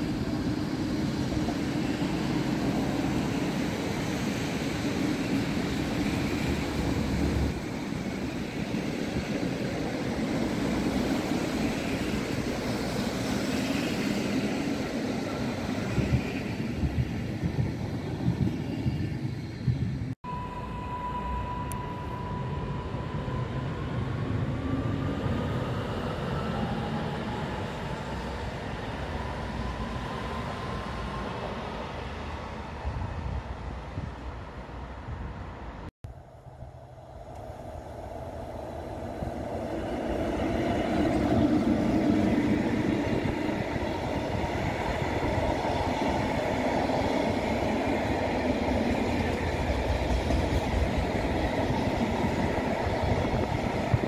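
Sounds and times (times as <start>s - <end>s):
train wheels rumbling on rail: 0.0s - 20.2s, 36.5s - 54.0s.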